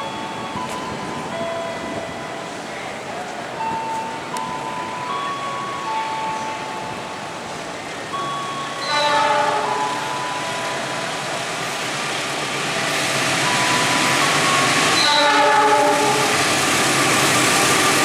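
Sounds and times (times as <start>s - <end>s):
train running noise: 0.0s - 18.0s
locomotive horn: 8.8s - 10.1s, 15.0s - 16.5s.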